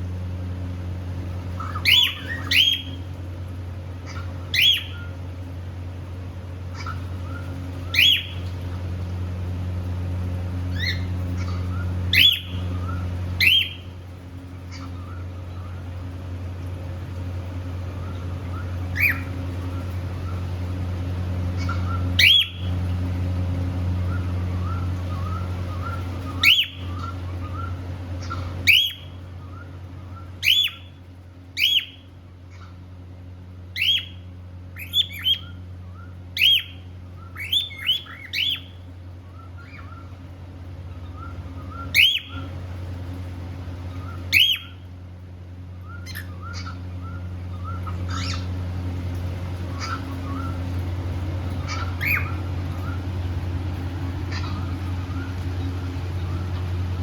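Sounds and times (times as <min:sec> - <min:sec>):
steady low hum: 0:00.0 - 0:57.0
cockatiel chirping: 0:01.6 - 0:03.0, 0:04.0 - 0:05.1, 0:06.7 - 0:08.4, 0:10.7 - 0:13.9, 0:18.0 - 0:19.4, 0:21.6 - 0:22.7, 0:24.1 - 0:30.9, 0:31.6 - 0:32.7, 0:33.8 - 0:34.2, 0:34.8 - 0:38.8, 0:41.1 - 0:42.5, 0:43.9 - 0:44.8, 0:45.8 - 0:48.6, 0:49.7 - 0:50.6, 0:51.6 - 0:53.0, 0:54.3 - 0:55.3.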